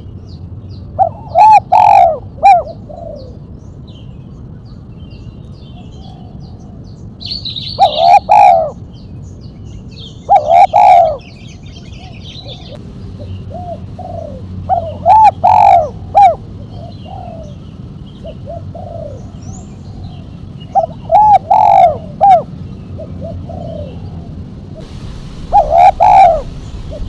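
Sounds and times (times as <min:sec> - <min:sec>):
small birds chirping faintly: 0:00.0 - 0:27.0
dove cooing: 0:01.0 - 0:03.4, 0:07.8 - 0:08.8, 0:10.3 - 0:11.3, 0:13.5 - 0:24.3, 0:25.4 - 0:27.0.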